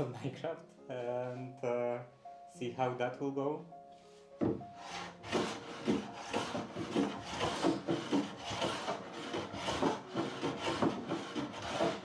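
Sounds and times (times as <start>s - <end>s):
sanding on wooden door: 4.8s - 12.0s.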